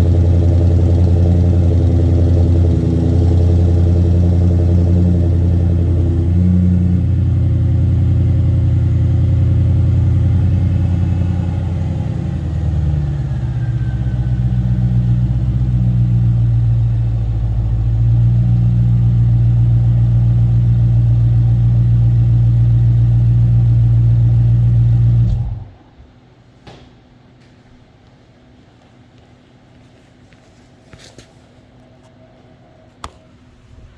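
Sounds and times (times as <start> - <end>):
deep car exhaust note: 0.0 - 25.8.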